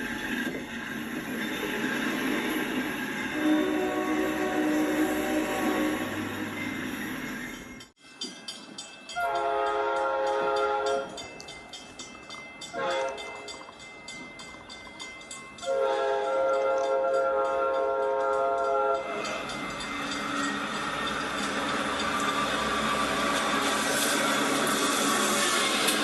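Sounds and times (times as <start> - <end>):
rumble and hiss of passing train: 0.0 - 26.0
train horn blasts: 3.3 - 6.3, 9.2 - 11.2, 12.7 - 13.4, 15.6 - 19.1.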